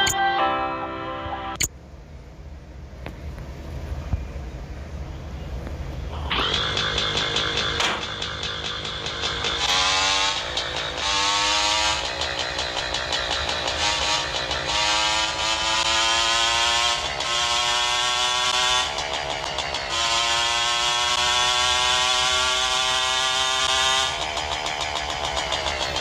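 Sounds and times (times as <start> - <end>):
motorcycle engine accelerating: 6.1 - 26.0.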